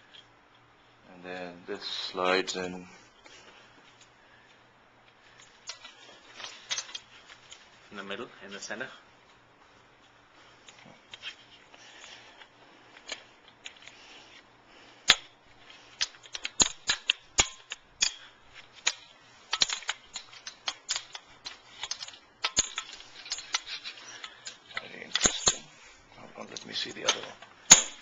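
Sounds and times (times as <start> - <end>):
hard parts clicking and knocking: 5.4 - 7.6, 15.0 - 25.7, 26.5 - 28.0.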